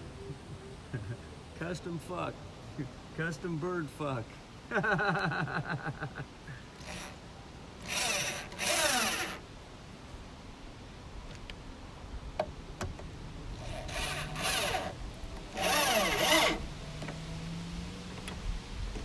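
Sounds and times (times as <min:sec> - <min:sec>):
power drill drilling into wood: 0:06.8 - 0:07.2, 0:07.8 - 0:09.4, 0:13.6 - 0:16.7.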